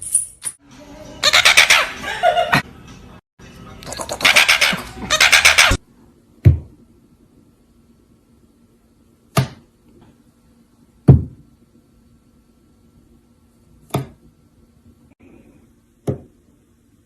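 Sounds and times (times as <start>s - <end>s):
knocks on something hard: 11.1s - 11.4s.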